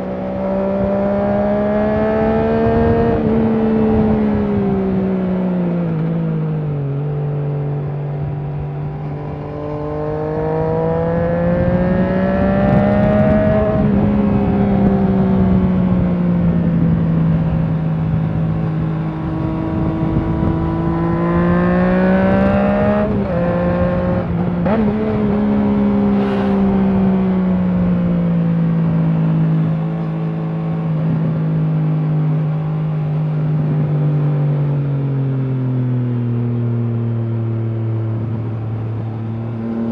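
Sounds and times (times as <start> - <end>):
wind rush: 0.0 - 6.0, 8.2 - 29.7
motorcycle engine revving: 0.0 - 36.8.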